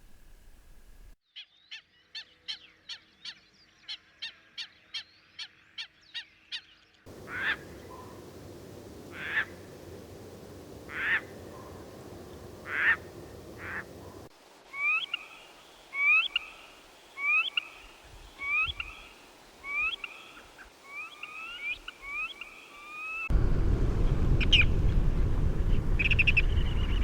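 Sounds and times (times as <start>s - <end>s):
background noise: 0.0s - 27.0s
loud bird call: 7.1s - 15.3s.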